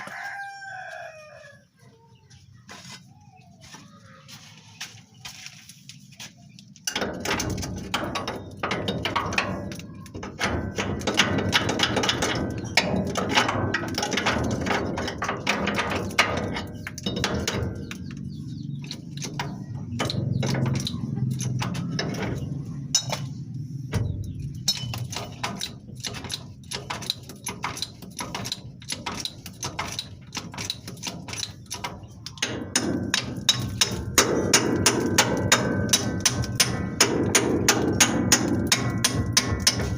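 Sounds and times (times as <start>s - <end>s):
knocking and tapping on a spring: 6.8s - 39.9s
hammer strikes: 32.4s - 39.9s.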